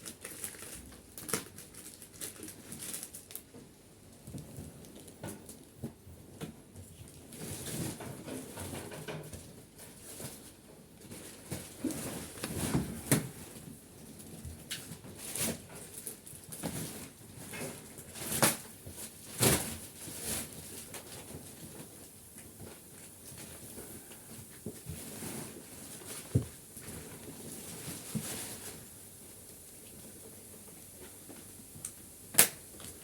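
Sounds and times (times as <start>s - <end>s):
plastic wrapping crackling: 0.0s - 3.6s, 14.7s - 29.0s, 31.0s - 33.0s.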